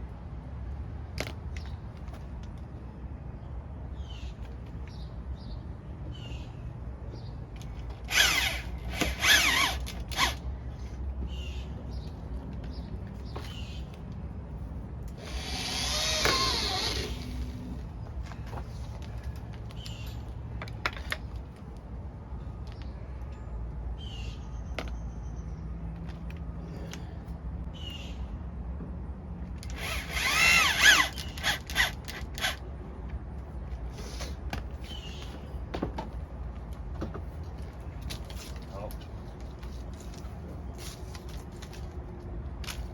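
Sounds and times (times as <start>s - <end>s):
power drill running: 8.1s - 10.4s, 15.2s - 17.6s, 29.6s - 32.6s.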